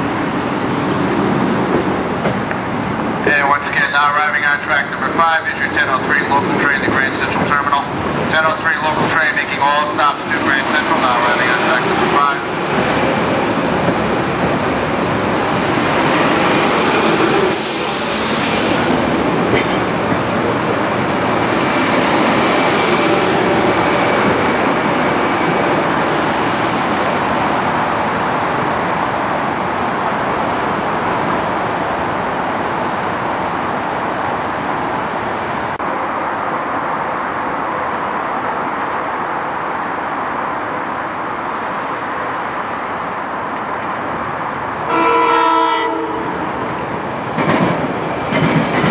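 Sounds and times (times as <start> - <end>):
electric train rumbling on rails: 0.0 - 48.9.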